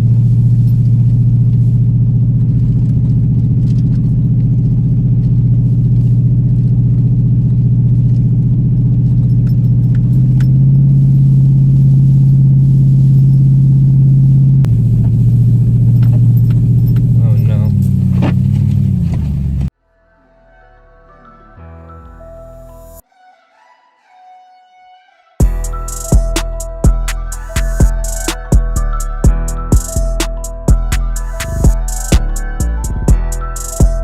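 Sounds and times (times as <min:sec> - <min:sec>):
truck engine running under load: 0:00.0 - 0:19.7
light rattles and clicks: 0:00.1 - 0:10.6.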